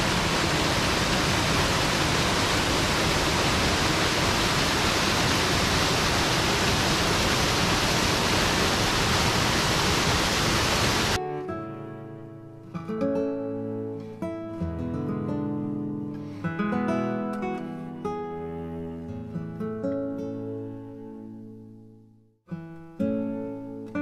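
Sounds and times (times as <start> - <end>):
waterfall roaring: 0.0 - 11.2.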